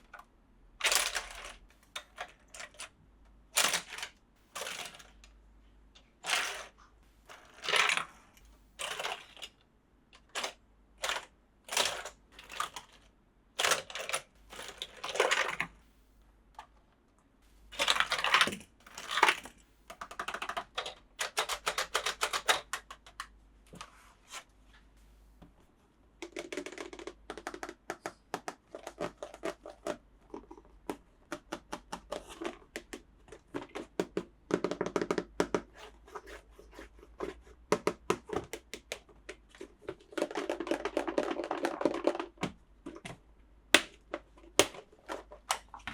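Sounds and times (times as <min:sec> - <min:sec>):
plastic toy parts clicking: 0:00.0 - 0:02.9, 0:03.6 - 0:05.3, 0:06.2 - 0:08.1, 0:08.8 - 0:09.6, 0:10.2 - 0:15.8, 0:17.7 - 0:23.4, 0:26.2 - 0:35.6, 0:43.8 - 0:45.9.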